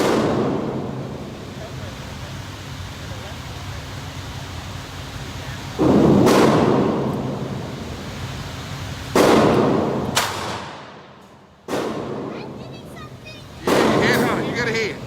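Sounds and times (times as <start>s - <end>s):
sharp crack: 0.0s - 0.8s, 5.8s - 7.2s, 9.1s - 12.4s, 13.6s - 14.8s
loud gunshots: 0.0s - 1.1s, 5.8s - 7.2s, 9.1s - 11.1s, 11.7s - 12.3s, 13.6s - 14.9s.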